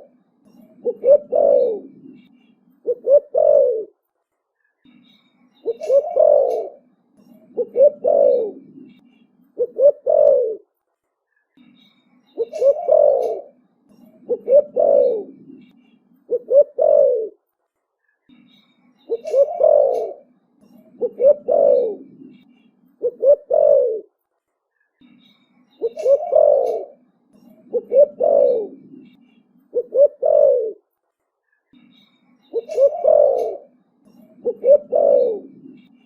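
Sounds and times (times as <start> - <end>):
dove cooing: 0.0 - 4.0, 5.6 - 9.0, 9.6 - 10.6, 12.4 - 15.7, 16.3 - 17.4, 19.1 - 22.4, 23.0 - 24.1, 25.8 - 30.8, 32.5 - 35.9.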